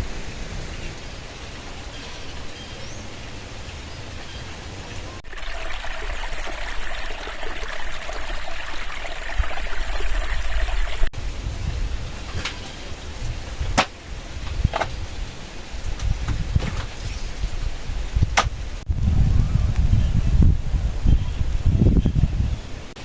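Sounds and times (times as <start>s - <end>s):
low wind rumble: 0.0s - 7.2s, 7.8s - 23.0s
running water: 0.0s - 15.6s.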